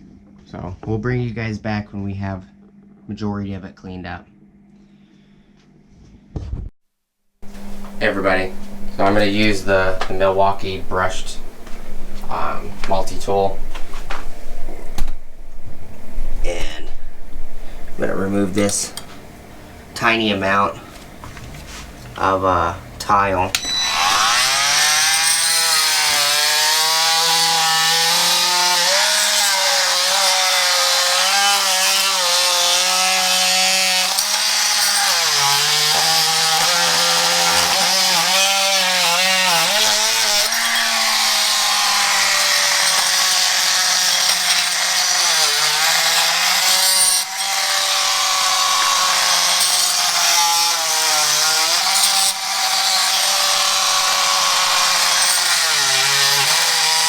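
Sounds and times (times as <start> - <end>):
oscillating multi-tool scraping tile: 23.6 - 57.0.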